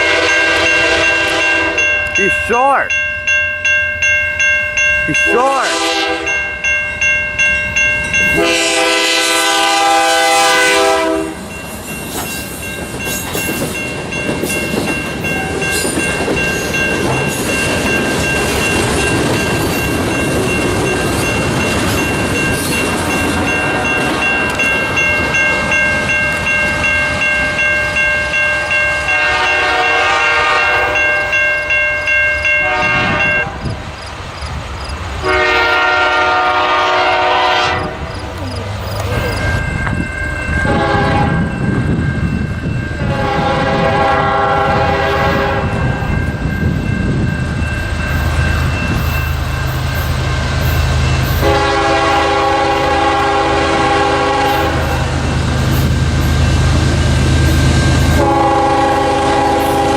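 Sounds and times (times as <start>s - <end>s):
train air horn blast: 0.0s - 1.8s, 5.6s - 6.3s, 8.4s - 11.4s, 29.1s - 31.0s, 32.6s - 33.6s, 35.2s - 38.1s, 40.7s - 41.4s, 43.0s - 45.8s, 51.4s - 55.0s, 58.2s - 59.9s
crossing bell dinging: 0.0s - 33.8s, 34.4s - 59.9s
train wheels clattering on rails: 10.8s - 31.1s, 34.4s - 59.9s.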